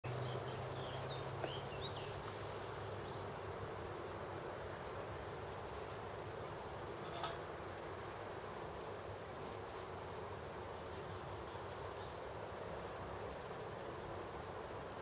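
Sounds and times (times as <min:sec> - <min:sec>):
outdoor background noise: 0:00.0 - 0:15.0
bird chirps: 0:00.1 - 0:03.2, 0:05.4 - 0:06.1, 0:09.4 - 0:10.1.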